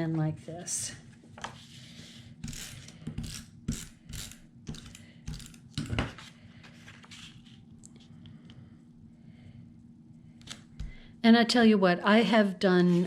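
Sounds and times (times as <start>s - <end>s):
paper rustling: 6.0s - 7.7s.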